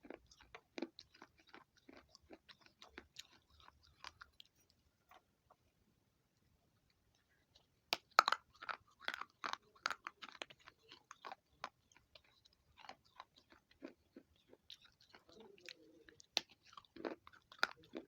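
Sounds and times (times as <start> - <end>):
crunchy chewing: 0.0 - 5.3, 7.1 - 18.0.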